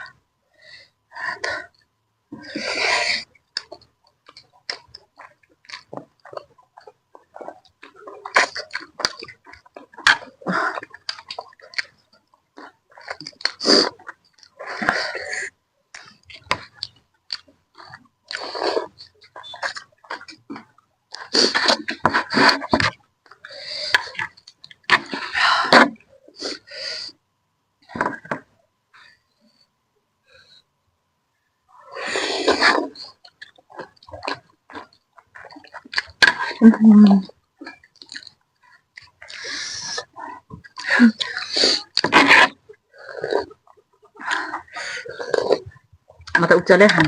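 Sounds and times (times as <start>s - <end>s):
wet chewing smacks: 3.6s - 14.9s, 32.5s - 36.6s, 37.6s - 46.4s
slurping noodles and soup: 12.6s - 22.8s, 31.7s - 38.3s, 39.0s - 45.8s.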